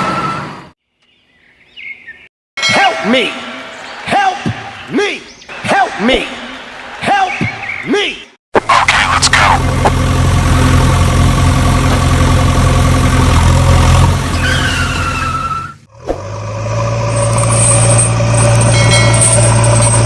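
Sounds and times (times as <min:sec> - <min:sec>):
vehicle engine running: 0:08.6 - 0:15.3, 0:15.9 - 0:20.0.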